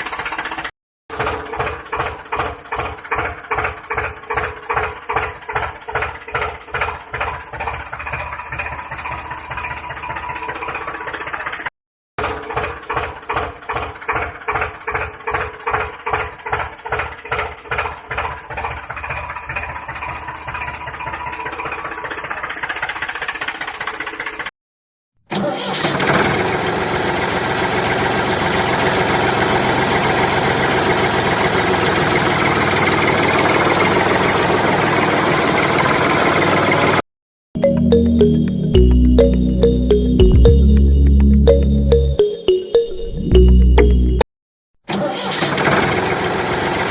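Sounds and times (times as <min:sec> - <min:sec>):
engine chugging: 0:00.0 - 0:24.5.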